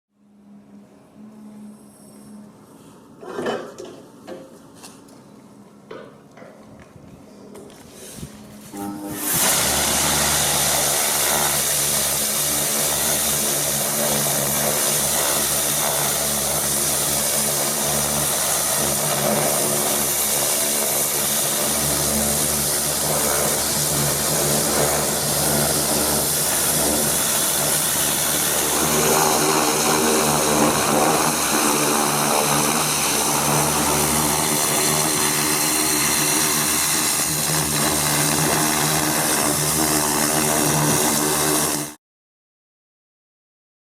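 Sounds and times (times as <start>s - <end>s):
pressure washer running: 8.6s - 42.0s.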